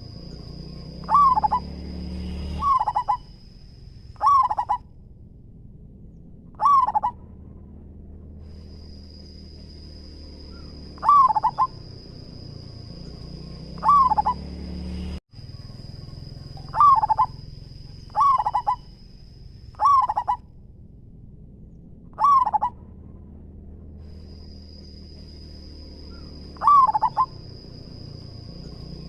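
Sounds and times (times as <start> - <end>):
dove cooing: 0.0 - 1.8, 2.6 - 3.3, 4.2 - 4.8, 6.5 - 7.4, 10.5 - 14.6, 15.5 - 19.0, 19.8 - 20.4, 22.1 - 23.0, 26.1 - 28.0
low hum: 0.0 - 29.0.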